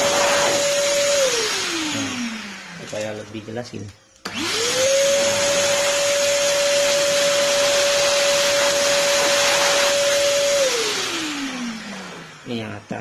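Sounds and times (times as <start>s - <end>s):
vacuum cleaner motor whine: 0.0s - 13.0s.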